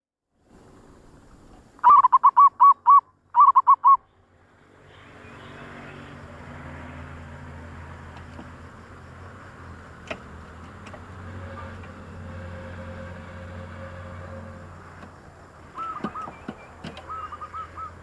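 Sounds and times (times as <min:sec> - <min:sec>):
steady hiss: 0:00.4 - 0:01.8
dove cooing: 0:01.8 - 0:04.0, 0:14.8 - 0:18.0.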